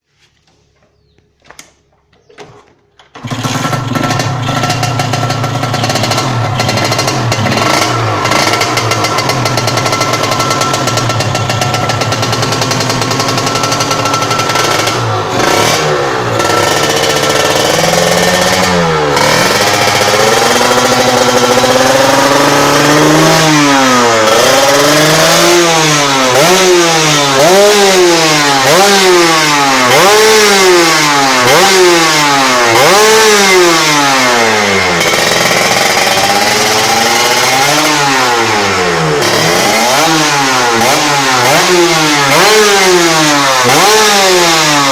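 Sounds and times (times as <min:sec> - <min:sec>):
motorcycle engine idling and revving: 0:01.8 - 0:44.9.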